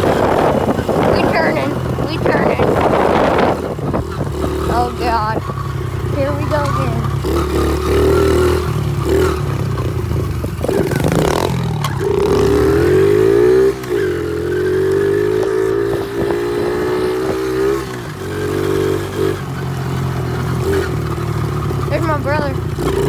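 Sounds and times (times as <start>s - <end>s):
motorbike engine revving: 0.0s - 23.0s.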